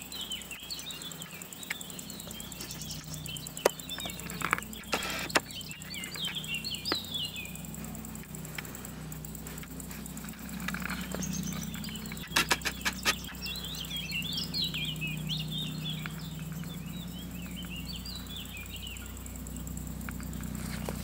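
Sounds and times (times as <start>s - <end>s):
small bird singing a twittering warble: 0.0s - 21.0s
steady low hum: 0.0s - 21.0s
sharp clicks: 1.6s - 7.1s.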